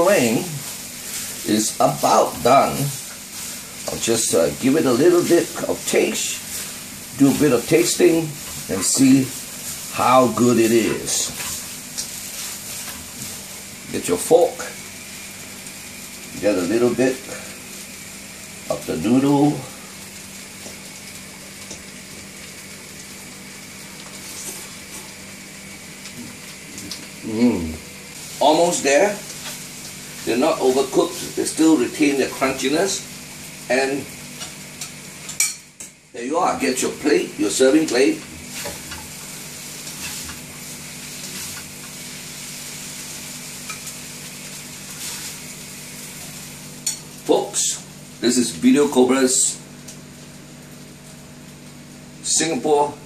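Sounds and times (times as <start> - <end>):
noodles sizzling in wok: 0.0 - 53.0
spatula scraping: 0.2 - 13.6, 38.4 - 42.4.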